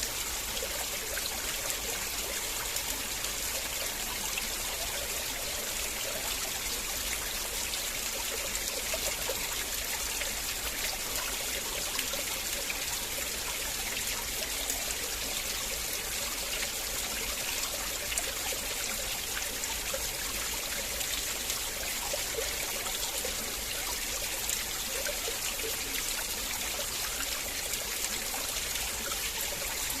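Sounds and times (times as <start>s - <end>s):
river water flowing: 0.0s - 30.0s.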